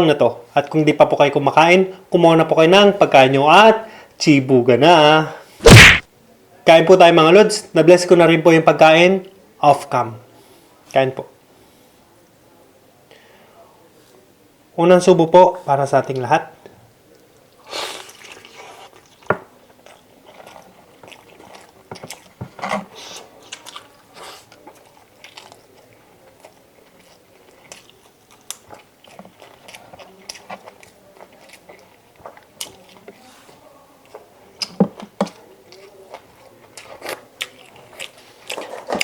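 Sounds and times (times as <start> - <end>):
wet mouth smacks: 5.6 - 6.0
person chewing food: 17.9 - 39.0.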